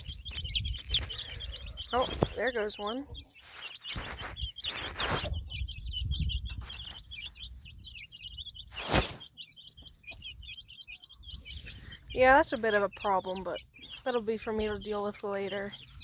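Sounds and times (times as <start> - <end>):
baby chicks peeping: 0.0 - 16.0
rustling: 3.3 - 5.4, 8.7 - 9.3.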